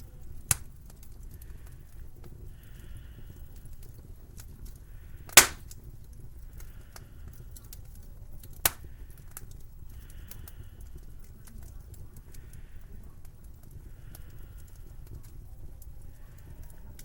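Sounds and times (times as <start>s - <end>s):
fire low rumble: 0.0s - 17.0s
wood fire crackling: 0.0s - 17.0s
sharp loud pops: 5.3s - 5.6s.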